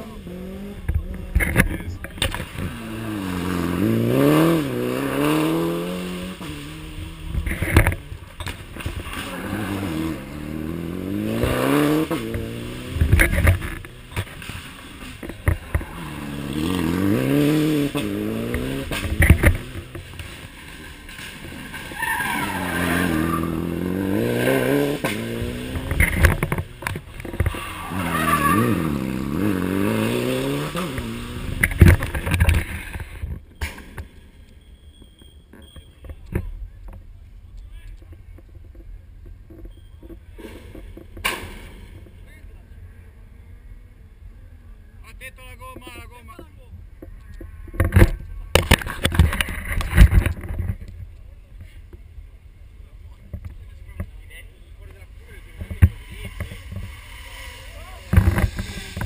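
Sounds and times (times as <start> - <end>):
rally car engine revving: 0.0 - 34.1, 53.4 - 59.0
tyre noise: 0.0 - 43.6, 45.7 - 59.0.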